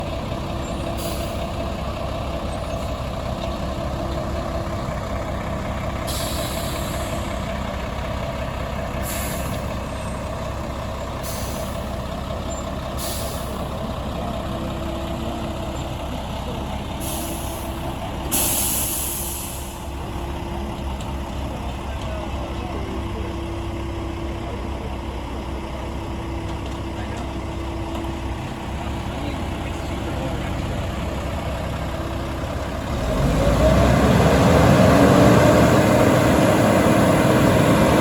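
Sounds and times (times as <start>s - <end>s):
truck engine running: 0.0s - 38.0s
air brake hisses: 1.0s - 1.4s, 6.1s - 7.2s, 9.0s - 9.7s, 11.2s - 11.8s, 13.0s - 13.6s, 17.0s - 19.9s.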